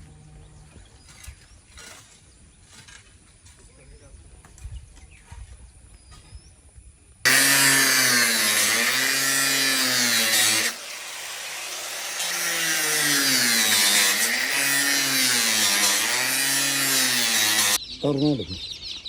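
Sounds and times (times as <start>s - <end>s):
small power tool motor running: 7.3s - 17.8s.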